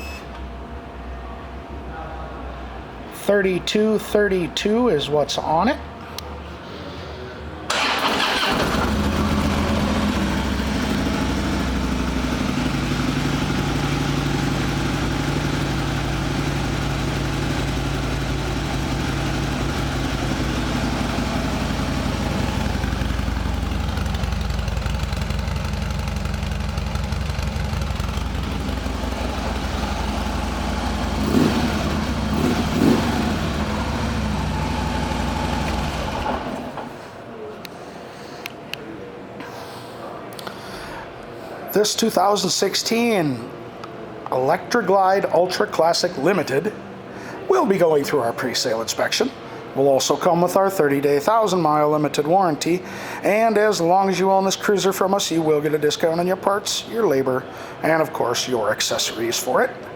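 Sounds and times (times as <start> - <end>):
motorcycle engine starting: 7.7 - 37.0
motorcycle throttle blips: 7.8 - 36.6
motorcycle engine idling: 8.2 - 36.7.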